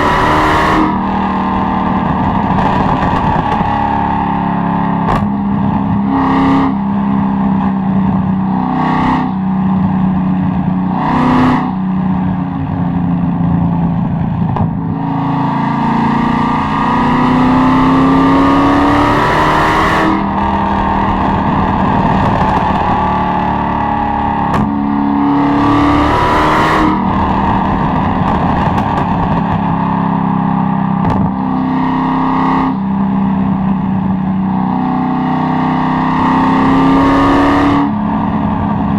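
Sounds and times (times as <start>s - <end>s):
car engine revving: 0.0s - 38.9s
exhaust pops: 2.0s - 3.9s, 5.0s - 6.0s, 13.5s - 14.9s, 20.1s - 23.8s, 24.4s - 24.8s, 27.1s - 29.8s, 31.0s - 31.4s.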